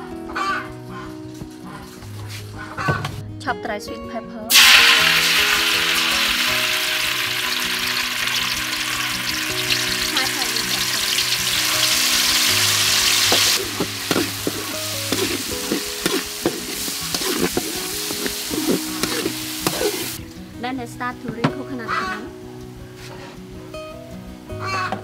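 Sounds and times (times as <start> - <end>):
paste sizzling in hot oil: 4.5 - 20.2
spatula scraping a wok: 11.1 - 20.2.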